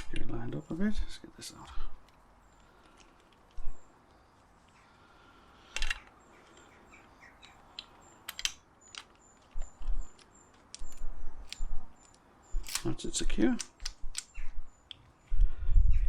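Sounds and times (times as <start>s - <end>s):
tools and metal parts clicking: 7.4s - 12.9s.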